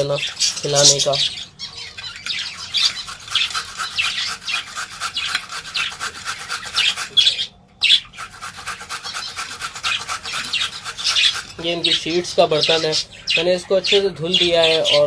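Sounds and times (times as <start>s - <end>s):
carrot grating on hand grater: 2.4s - 12.3s.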